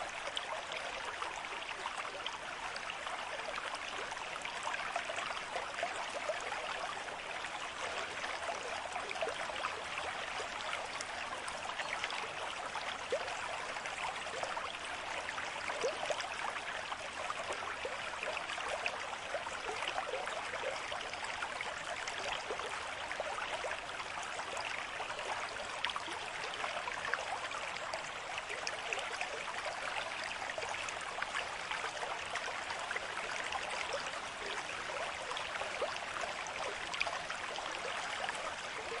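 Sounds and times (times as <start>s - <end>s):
stream flowing: 0.0s - 39.0s.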